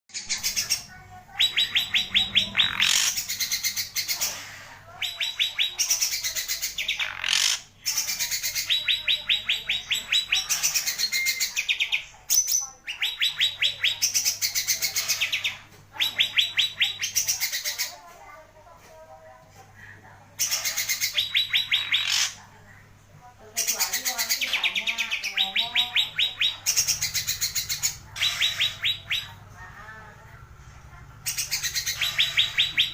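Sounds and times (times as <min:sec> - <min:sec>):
songbird singing: 0:00.1 - 0:04.2, 0:05.0 - 0:17.9, 0:20.4 - 0:22.4, 0:23.6 - 0:29.5, 0:31.2 - 0:32.9.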